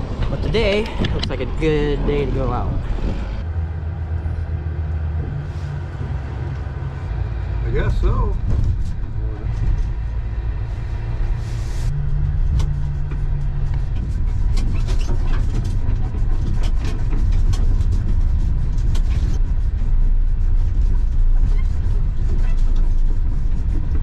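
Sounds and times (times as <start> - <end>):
low engine rumble: 0.0 - 24.0
rattles and knocks: 8.3 - 10.3, 12.0 - 24.0.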